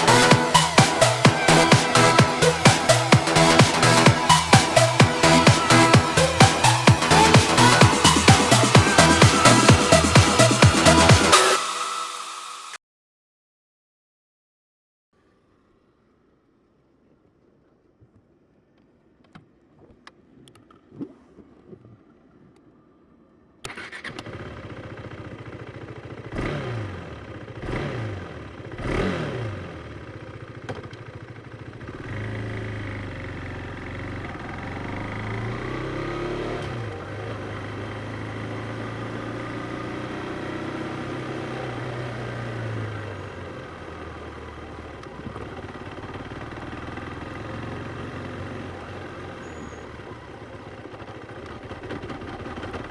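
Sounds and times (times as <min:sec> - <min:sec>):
motorcycle engine revving: 0:00.0 - 0:12.8, 0:23.6 - 0:52.9.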